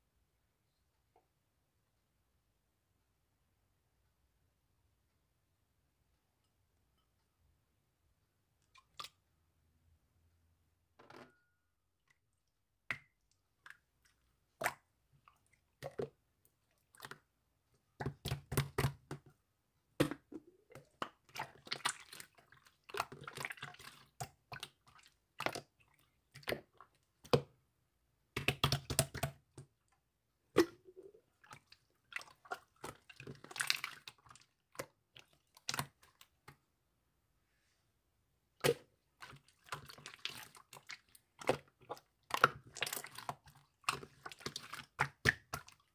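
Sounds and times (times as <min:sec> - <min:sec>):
slime squelching and popping: 0:18.0 - 0:27.6, 0:28.3 - 0:29.9, 0:30.5 - 0:36.6, 0:38.6 - 0:45.9.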